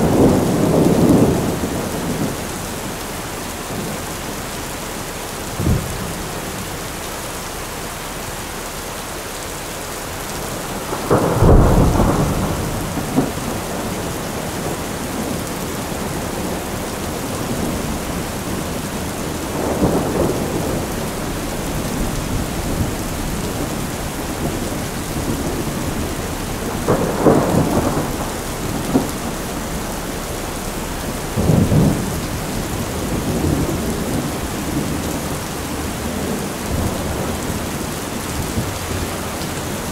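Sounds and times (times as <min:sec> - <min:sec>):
thunder rumbling: 0:00.0 - 0:07.0, 0:10.0 - 0:39.9
steady rain: 0:00.0 - 0:39.9.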